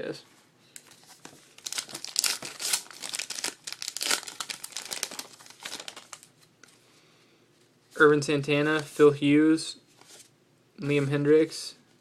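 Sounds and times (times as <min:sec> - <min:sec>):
wrapper crinkling and tearing: 0:00.9 - 0:06.5.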